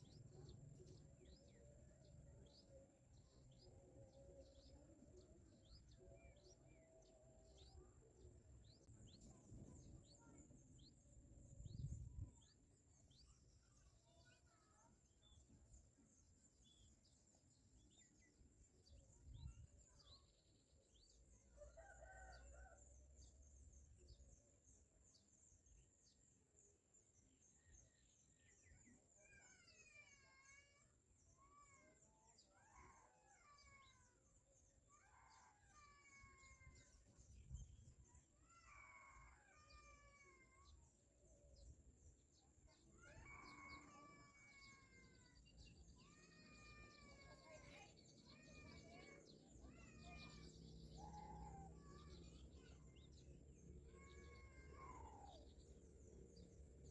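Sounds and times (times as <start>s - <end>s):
faint birdsong chirps: 0.0s - 56.9s
distant rooster crowing: 21.6s - 22.9s.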